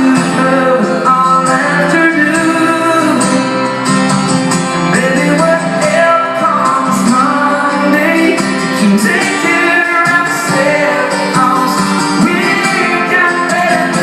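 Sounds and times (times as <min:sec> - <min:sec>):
country-pop band playing: 0:00.0 - 0:14.0
guitar lines: 0:00.0 - 0:14.0.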